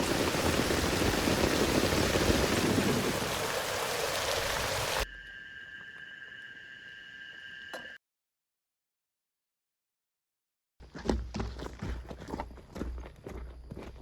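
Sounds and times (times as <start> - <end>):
heavy rain hissing: 0.0 - 5.0
forest background: 0.0 - 8.0, 10.8 - 14.0
steady high-pitched tones: 5.0 - 8.0.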